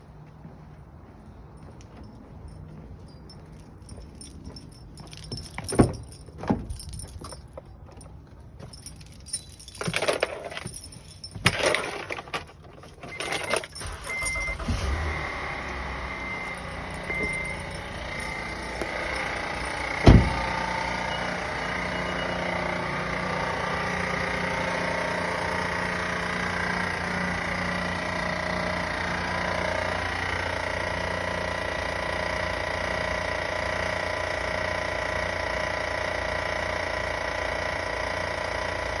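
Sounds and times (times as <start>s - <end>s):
van engine running: 1.0s - 39.0s
keys jangling: 1.6s - 15.0s, 15.6s - 20.7s
sharp thump: 20.0s - 20.5s.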